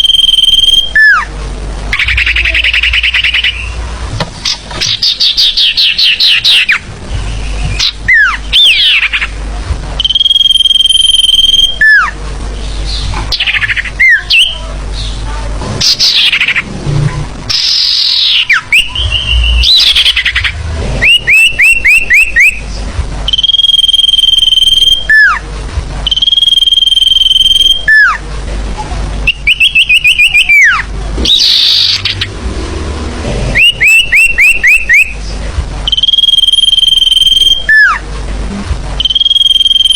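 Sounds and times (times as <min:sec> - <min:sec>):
high bird whistles: 0:00.0 - 0:01.3, 0:01.9 - 0:03.8, 0:04.4 - 0:09.3, 0:10.0 - 0:12.1, 0:17.5 - 0:22.7, 0:23.3 - 0:25.4, 0:26.1 - 0:28.2, 0:29.3 - 0:32.3, 0:33.5 - 0:35.2, 0:35.9 - 0:38.0, 0:39.0 - 0:39.9
falling bird chirps and trills: 0:01.9 - 0:09.4, 0:15.8 - 0:16.7, 0:17.5 - 0:25.4, 0:29.3 - 0:32.5.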